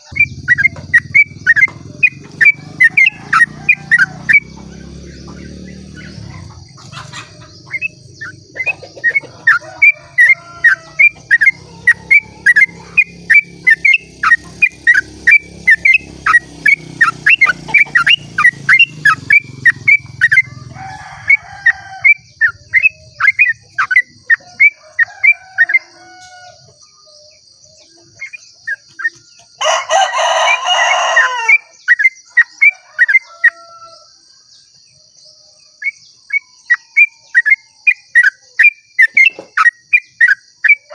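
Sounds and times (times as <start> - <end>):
harsh bird call: 0.0 - 26.8, 28.1 - 34.0.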